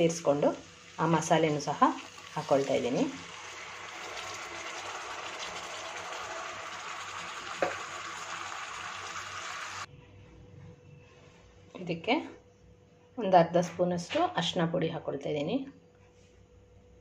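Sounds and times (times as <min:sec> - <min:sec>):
paste sizzling in hot oil: 0:00.2 - 0:09.9.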